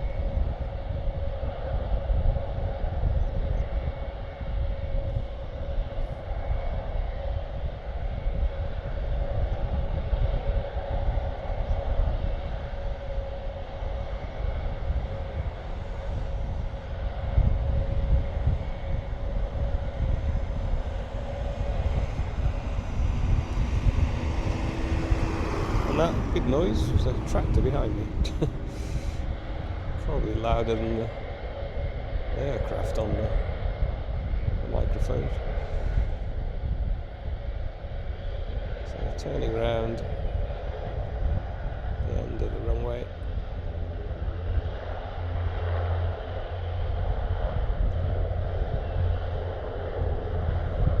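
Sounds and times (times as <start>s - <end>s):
turboprop aircraft taxiing: 0.0s - 51.0s
steady hum: 12.9s - 37.7s
tractor engine rumbling: 19.3s - 32.4s.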